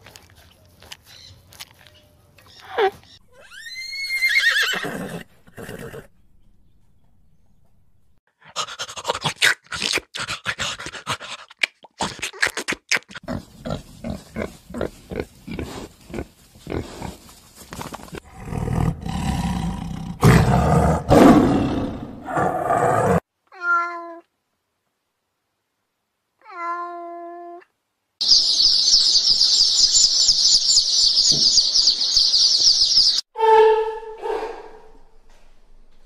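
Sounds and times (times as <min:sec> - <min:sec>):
high-pitched animal call: 0:02.5 - 0:06.1, 0:33.4 - 0:34.7
tiger growling and roaring: 0:18.2 - 0:23.2.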